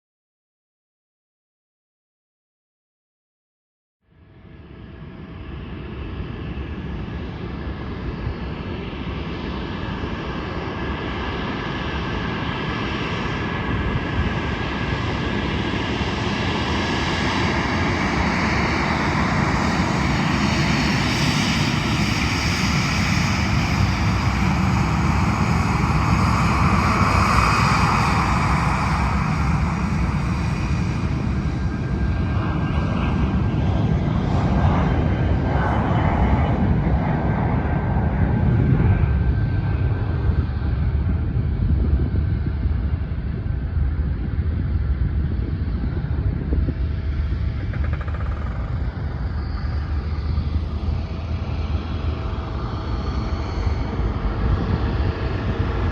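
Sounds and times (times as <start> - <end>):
jet engines whining and rumbling: 4.1 - 55.9.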